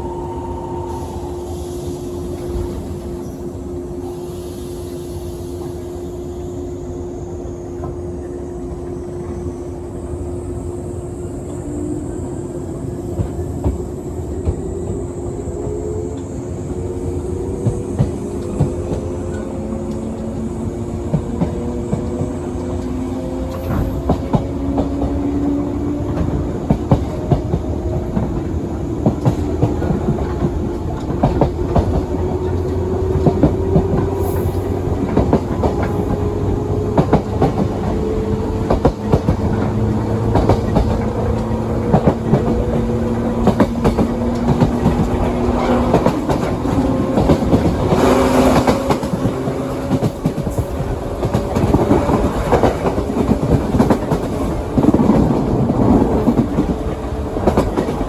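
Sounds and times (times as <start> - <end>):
train rumble: 0.0 - 58.0
rail-joint clicks: 15.6 - 58.0.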